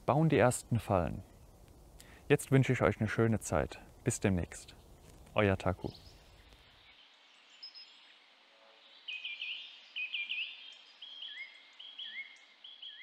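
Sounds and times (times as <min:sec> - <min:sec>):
faint outdoor hiss: 0:00.0 - 0:13.0
small bird chirping: 0:03.9 - 0:08.3, 0:08.9 - 0:13.0.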